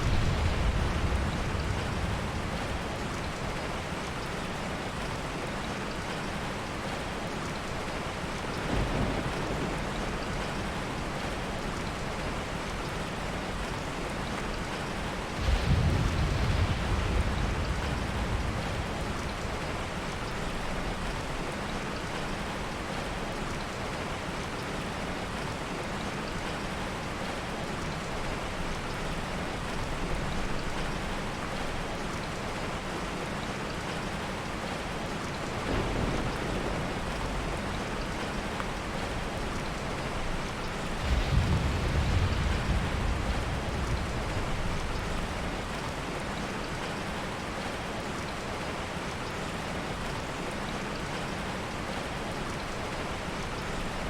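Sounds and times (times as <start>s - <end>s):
thunder rolling: 0.0s - 3.8s, 8.6s - 12.2s, 15.2s - 21.1s, 35.5s - 45.8s
heavy rain: 0.0s - 54.0s.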